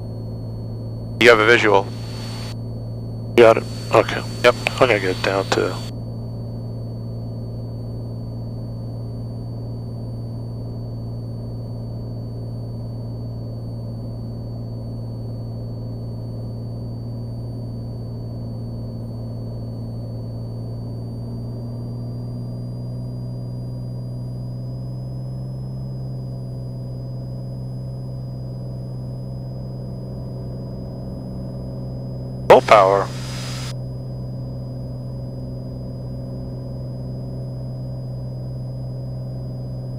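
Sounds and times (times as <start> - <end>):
propeller plane engine droning: 0.0 - 31.6, 32.5 - 39.9
thin high whine: 1.2 - 2.6, 3.4 - 5.9, 32.5 - 33.7.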